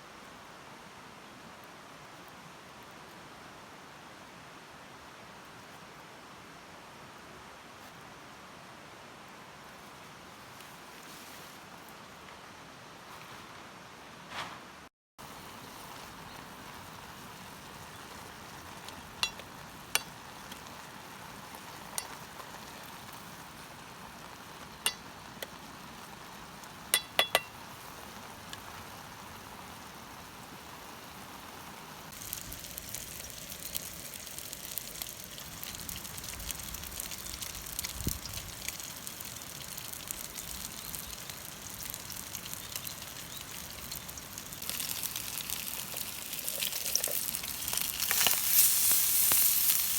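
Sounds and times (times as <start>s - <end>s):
food sizzling in a pan: 15.2s - 49.9s
metallic clinks of cookware: 27.0s - 27.5s.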